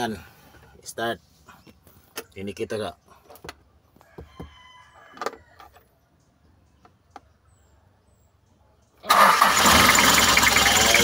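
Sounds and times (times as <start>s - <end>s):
diesel engine starting and running: 9.0s - 11.0s.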